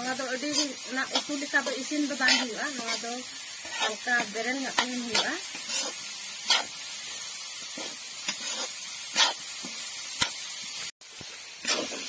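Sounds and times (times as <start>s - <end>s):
vegetables sizzling in a pan: 0.0s - 12.0s
metal spatula scraping: 0.2s - 7.0s, 7.6s - 10.4s, 11.6s - 12.0s.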